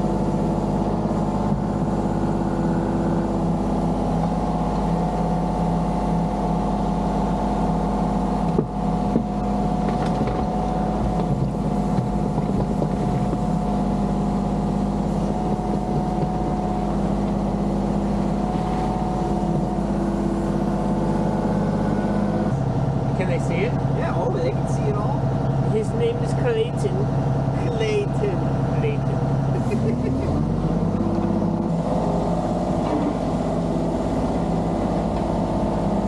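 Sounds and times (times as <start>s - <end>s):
engine running steadily: 0.0s - 36.0s.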